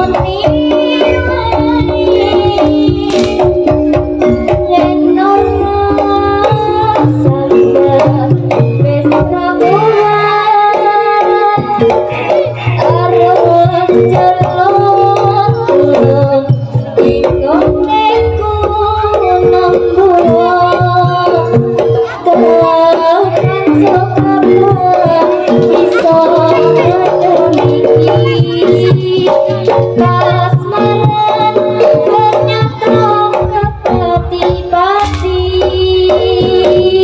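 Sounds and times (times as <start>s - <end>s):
wavering melody line: 0.0s - 10.6s
hand drum beats: 0.0s - 37.0s
metallophone and gong notes: 0.1s - 9.5s, 34.9s - 36.9s.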